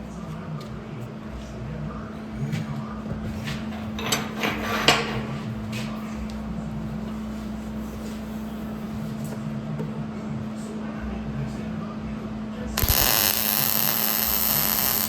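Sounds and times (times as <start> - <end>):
electrical hum: 12.8 - 15.0.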